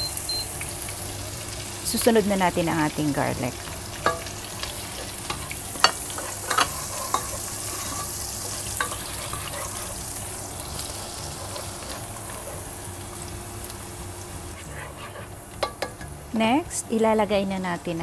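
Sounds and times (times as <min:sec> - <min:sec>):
onion and garlic sizzling in oil: 0:00.0 - 0:18.0
spatula stirring: 0:03.6 - 0:13.8, 0:14.4 - 0:16.4
spatula knocking against pot: 0:15.6 - 0:16.1.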